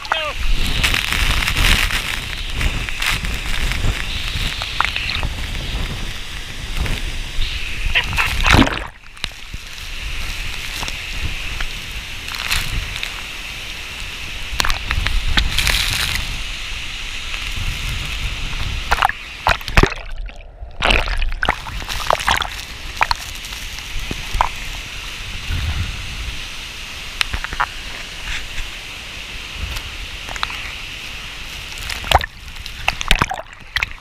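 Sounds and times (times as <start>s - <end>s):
rush of falling water: 0.0s - 34.0s
water sloshing and splashing: 8.0s - 11.0s, 18.8s - 24.8s, 31.5s - 34.0s.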